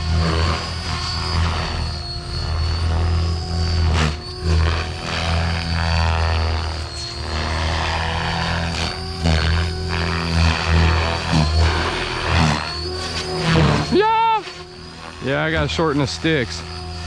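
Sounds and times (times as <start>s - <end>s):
high motor whine: 0.0s - 17.0s
rotor hum: 0.0s - 17.0s.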